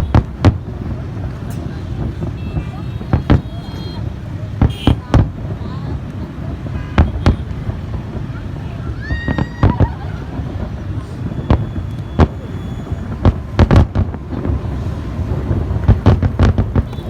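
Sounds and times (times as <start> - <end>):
fireworks bangs: 0.0 - 17.0
steady low rumble: 3.1 - 17.0.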